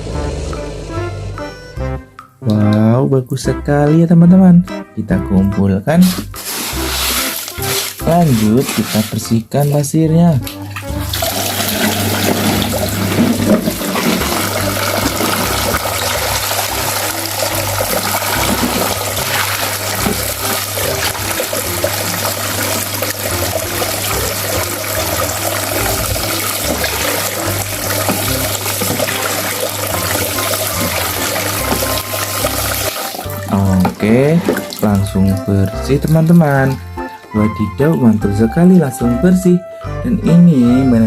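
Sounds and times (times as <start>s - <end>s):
running water rinsing: 5.9s - 9.8s, 10.4s - 38.4s.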